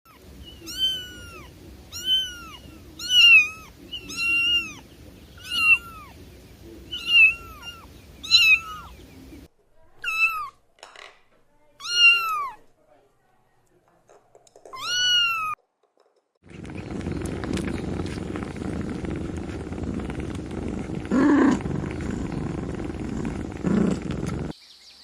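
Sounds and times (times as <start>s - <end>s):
cat meowing: 0.6s - 4.8s, 5.4s - 6.2s, 6.9s - 8.9s, 10.0s - 10.6s, 11.8s - 12.6s, 14.8s - 15.6s
low background hum: 16.5s - 24.5s.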